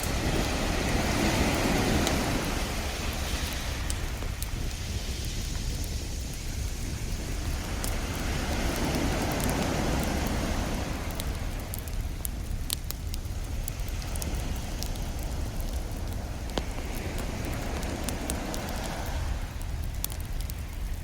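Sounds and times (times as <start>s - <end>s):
ocean wave rushing: 0.0s - 4.4s, 14.2s - 19.7s
wood fire crackling and popping: 0.0s - 21.0s.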